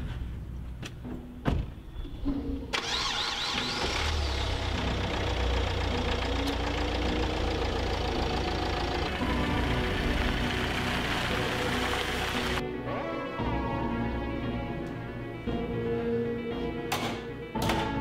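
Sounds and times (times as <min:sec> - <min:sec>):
vehicle engine running: 0:02.8 - 0:12.6.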